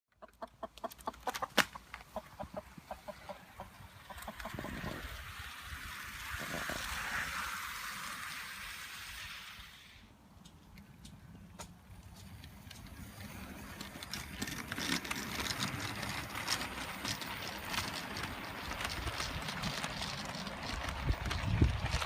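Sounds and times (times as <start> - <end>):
model train wheels clicking on joints: 0.1 - 22.0
model train running noise: 2.5 - 10.1, 12.4 - 22.0.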